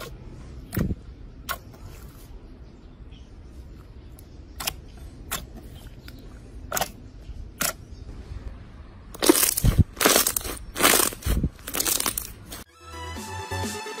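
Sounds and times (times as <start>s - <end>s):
slime crackling squishes: 9.2s - 12.6s.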